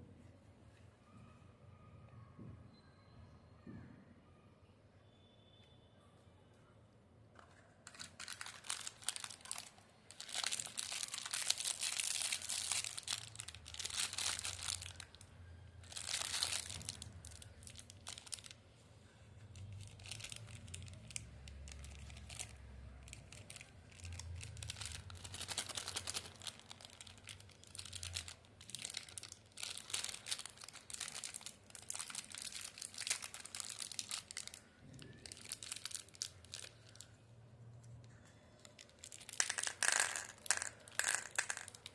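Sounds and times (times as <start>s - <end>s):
candy wrappers crinkling: 7.4s - 18.6s, 19.4s - 37.2s, 38.0s - 41.9s.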